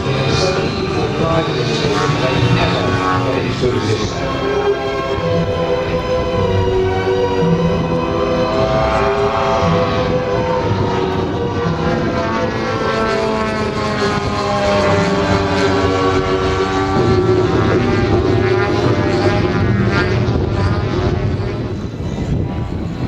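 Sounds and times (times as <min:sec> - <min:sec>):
model plane engine revving: 0:00.0 - 0:21.7.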